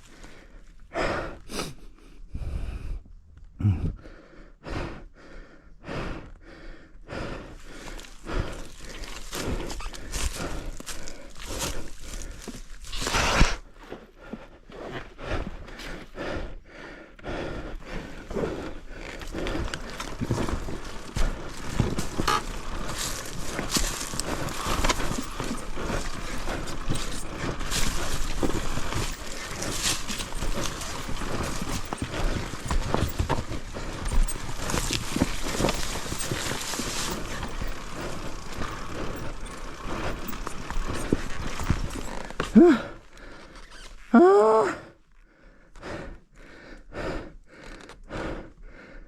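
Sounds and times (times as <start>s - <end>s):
dirt bike knocking on rocks: 19.8s - 42.6s.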